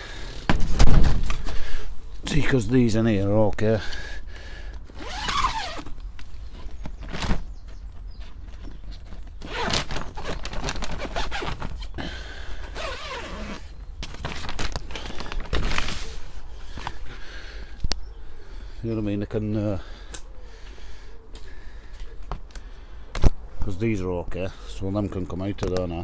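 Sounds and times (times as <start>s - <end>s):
plant pots scraping and rustling: 0.0s - 4.2s, 4.8s - 17.2s.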